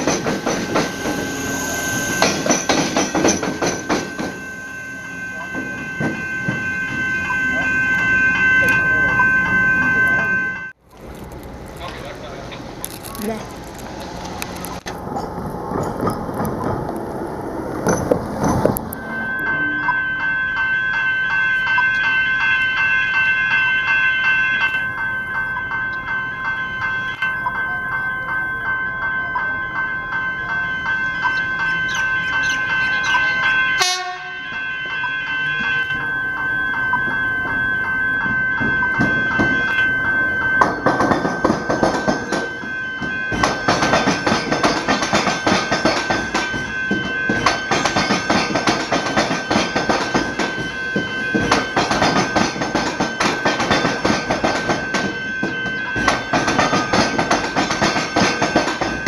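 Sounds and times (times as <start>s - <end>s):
wheels clattering over rail joints: 0.0s - 4.5s, 10.8s - 19.0s, 37.4s - 59.0s
electric rail vehicle whine: 0.0s - 59.0s.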